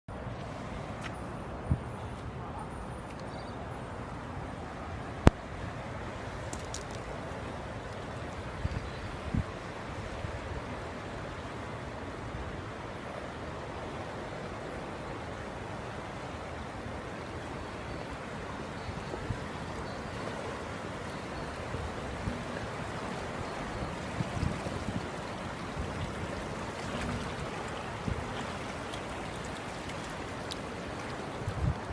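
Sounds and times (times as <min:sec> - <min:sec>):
floodwater rushing: 0:00.1 - 0:31.9.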